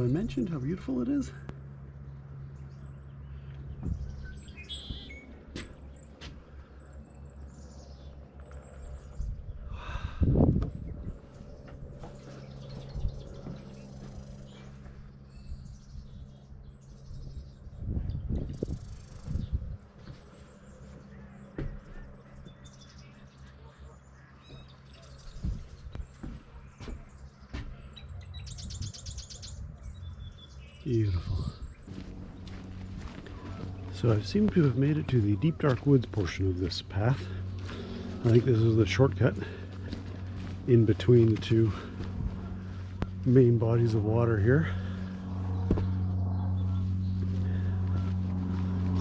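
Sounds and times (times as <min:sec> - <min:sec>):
low background hum: 0:00.0 - 0:49.0
small birds chirping: 0:00.0 - 0:49.0
soft footstep thuds: 0:21.5 - 0:22.6, 0:31.9 - 0:35.9, 0:45.5 - 0:46.2.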